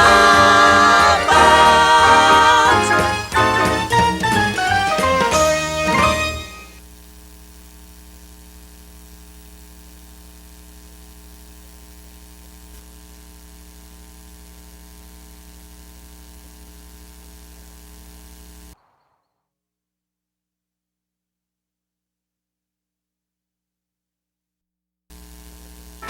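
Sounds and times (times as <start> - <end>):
tape hiss: 0.0 - 12.8
buzzy electrical mains hum: 0.0 - 18.8, 25.1 - 26.0.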